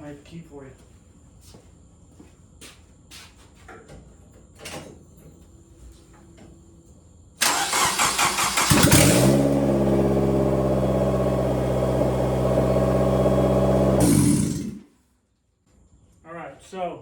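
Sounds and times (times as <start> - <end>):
starter cranking engine: 7.4 - 14.8
car engine idling loudly: 8.6 - 14.8.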